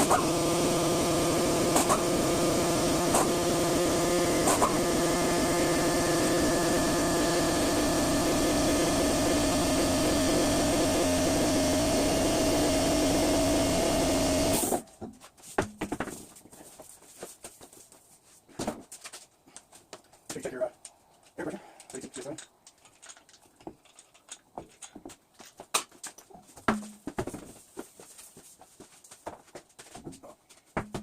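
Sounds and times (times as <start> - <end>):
air compressor motor running: 0.0 - 14.8.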